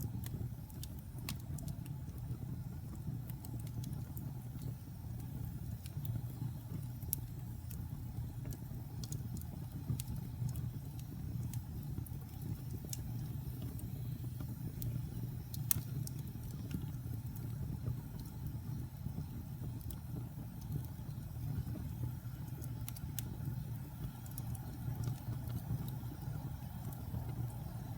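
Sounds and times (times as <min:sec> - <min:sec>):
flames rumbling: 0:00.0 - 0:27.9
wood crackling and popping: 0:00.0 - 0:27.9.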